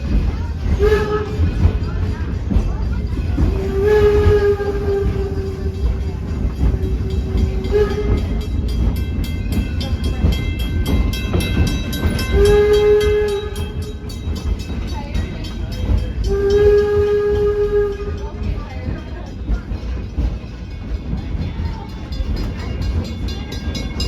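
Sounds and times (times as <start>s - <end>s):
train low rumble: 0.0s - 24.0s
wheels clicking on rails: 0.0s - 24.0s
steam locomotive whistle: 0.7s - 1.9s, 3.4s - 8.7s, 12.2s - 14.2s, 16.2s - 18.5s.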